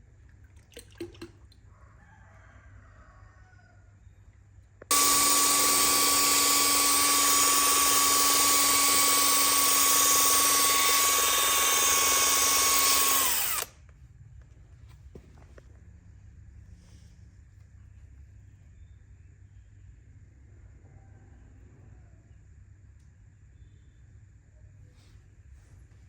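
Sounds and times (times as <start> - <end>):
power tool motor whining: 4.9 - 13.8.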